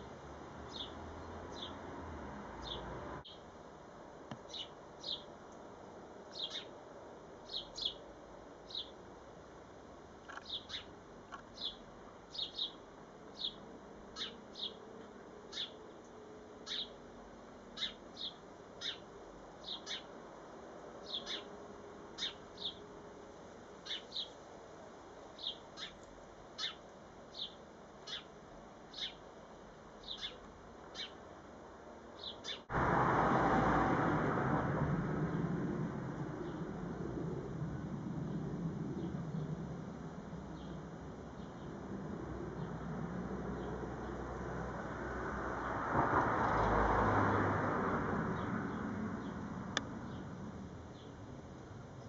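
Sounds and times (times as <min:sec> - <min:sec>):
small bird chirping: 0:02.6 - 0:03.5, 0:04.4 - 0:05.3, 0:06.3 - 0:06.8, 0:07.5 - 0:08.0, 0:08.7 - 0:09.0, 0:10.2 - 0:13.6, 0:14.2 - 0:14.8, 0:15.5 - 0:17.0, 0:17.7 - 0:20.2, 0:21.0 - 0:21.5, 0:22.2 - 0:22.8, 0:23.8 - 0:24.4, 0:25.4 - 0:29.3, 0:30.0 - 0:31.2, 0:32.2 - 0:32.7.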